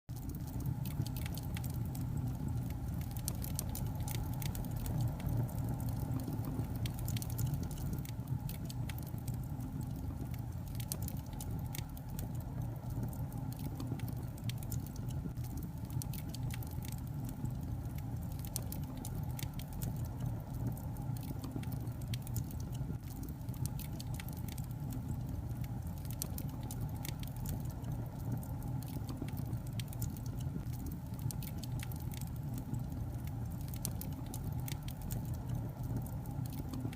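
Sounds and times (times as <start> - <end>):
log fire crackling: 0.1 - 36.9.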